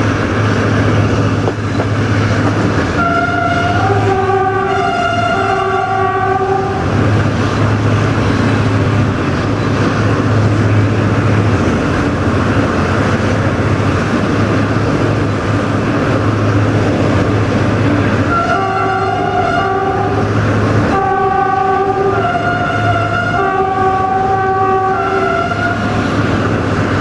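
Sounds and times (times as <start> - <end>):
moving train rushing drone: 0.0 - 27.0
locomotive horn chord: 2.9 - 6.9, 18.2 - 26.0.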